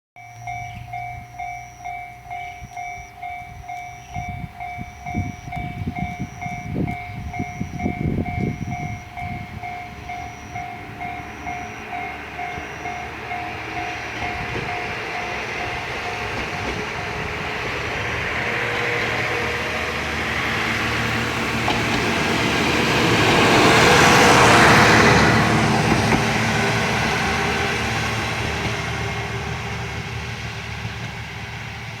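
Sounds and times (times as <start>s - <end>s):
level crossing alarm bell: 0.2s - 16.8s
diesel railcar passing: 0.2s - 32.0s.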